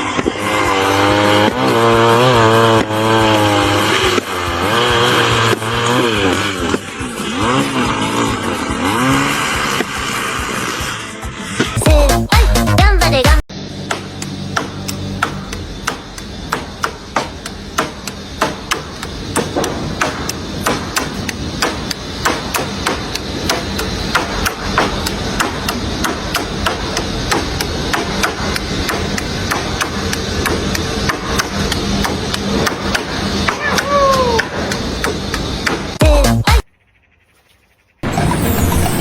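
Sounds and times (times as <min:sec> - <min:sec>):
work site background noise: 0:00.0 - 0:11.8, 0:13.5 - 0:39.0
hammer blows: 0:13.5 - 0:36.7.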